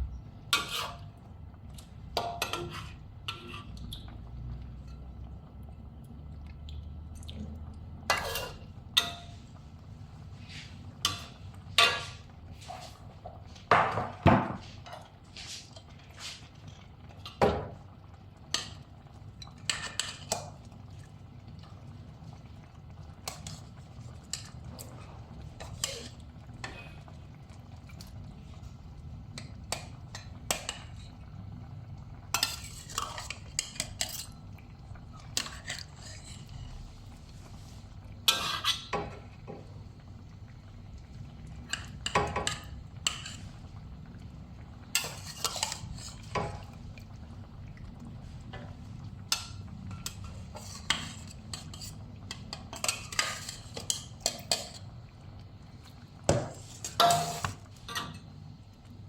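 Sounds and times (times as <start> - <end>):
metal utensils clanking on pots: 0.5 - 1.2, 2.1 - 3.8, 8.0 - 9.4, 11.0 - 12.8, 17.1 - 20.6, 29.4 - 31.1, 32.3 - 34.4, 38.2 - 39.7, 41.6 - 43.4, 44.9 - 46.7, 49.3 - 54.9, 56.3 - 58.3.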